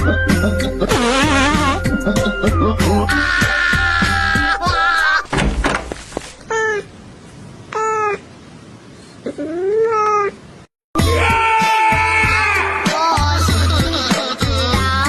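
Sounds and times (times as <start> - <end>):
music: 0.0 - 5.1, 11.0 - 15.0
thud: 5.3 - 6.0.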